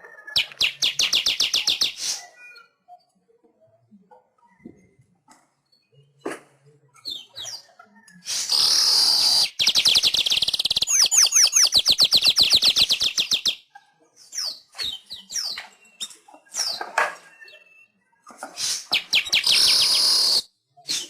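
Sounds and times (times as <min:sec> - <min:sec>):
weaver bird chattering: 0:00.4 - 0:02.3, 0:08.3 - 0:13.6, 0:18.9 - 0:20.4.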